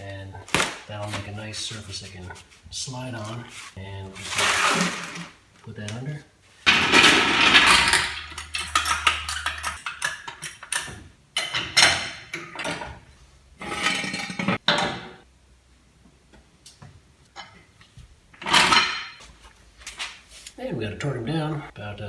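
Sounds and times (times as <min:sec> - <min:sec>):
rustling: 0:00.0 - 0:09.8
tools clicking and knocking: 0:06.7 - 0:13.1.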